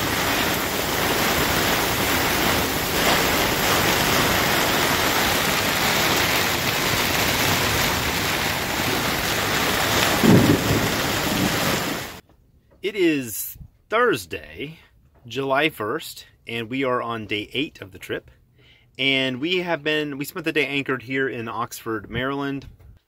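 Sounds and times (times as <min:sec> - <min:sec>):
heavy rain pouring on canvas: 0:00.0 - 0:12.2
strong wind: 0:00.0 - 0:12.2.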